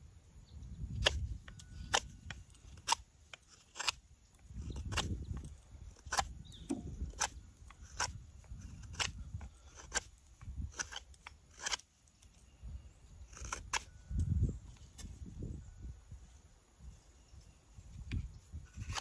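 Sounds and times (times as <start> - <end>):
knife shaving wood: 1.0 - 12.5, 13.1 - 15.2, 18.2 - 19.0.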